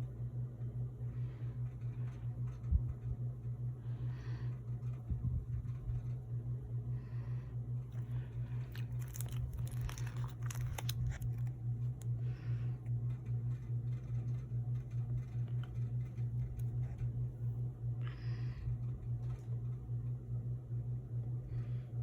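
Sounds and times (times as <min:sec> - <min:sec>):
steady low hum: 0:00.0 - 0:22.0
cards and plastic sleeves crinkling: 0:08.0 - 0:12.0.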